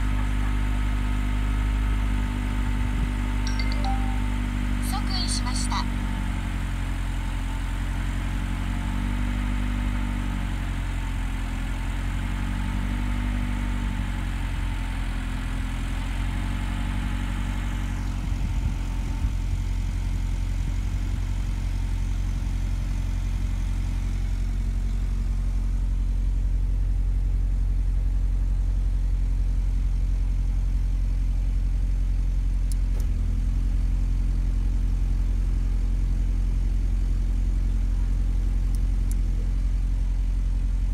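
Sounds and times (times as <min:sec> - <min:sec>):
car engine idling: 0:14.2 - 0:40.9.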